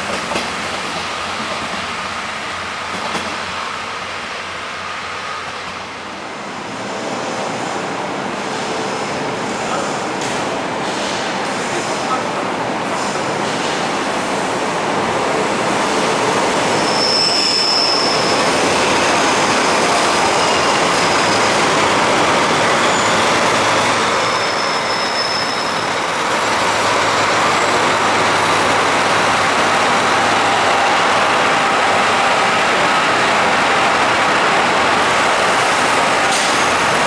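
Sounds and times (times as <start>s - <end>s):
train wheels on rails: 0.0s - 37.0s
high wheel squeals: 16.0s - 37.0s.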